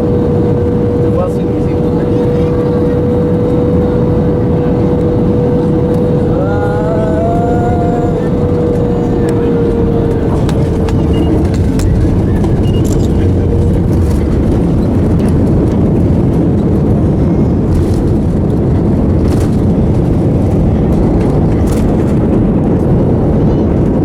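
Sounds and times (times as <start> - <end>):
airliner engine roar in cabin: 0.0 - 24.0
faint hum: 2.8 - 16.3.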